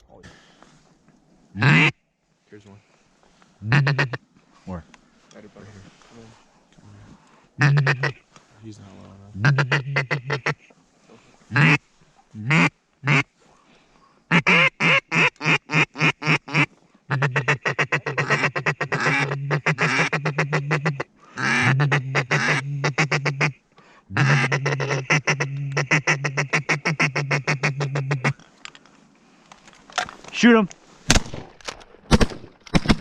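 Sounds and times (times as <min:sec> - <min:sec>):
duck call feeding chatter: 0:01.6 - 0:01.9, 0:03.6 - 0:04.2, 0:07.6 - 0:08.2, 0:09.4 - 0:10.7, 0:11.5 - 0:11.8, 0:12.4 - 0:13.2, 0:14.3 - 0:28.4
duck call quacks: 0:01.6 - 0:01.9, 0:03.6 - 0:04.2, 0:07.6 - 0:08.2, 0:09.4 - 0:10.7, 0:11.5 - 0:11.8, 0:12.4 - 0:13.2, 0:14.3 - 0:28.4.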